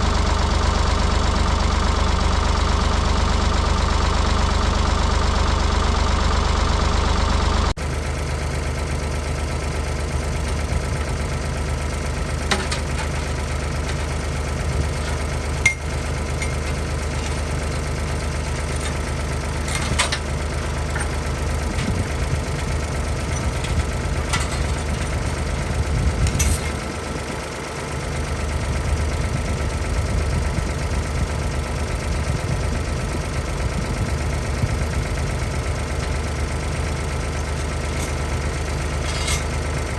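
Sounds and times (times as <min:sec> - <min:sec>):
backhoe loader engine running: 0:00.0 - 0:39.9
sharp metal clanks: 0:14.8 - 0:17.5, 0:37.5 - 0:39.6.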